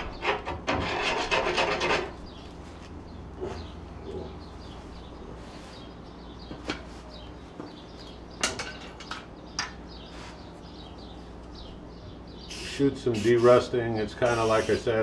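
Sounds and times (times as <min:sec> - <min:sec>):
low background hum: 0:00.0 - 0:15.0
small birds chirping: 0:02.1 - 0:15.0.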